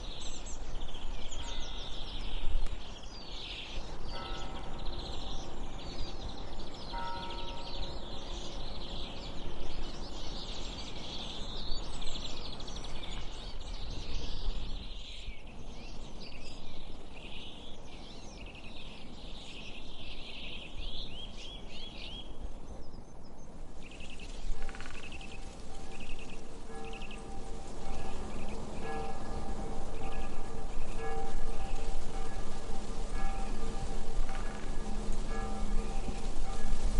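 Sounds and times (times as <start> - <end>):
bird calls: 23.8 - 36.9.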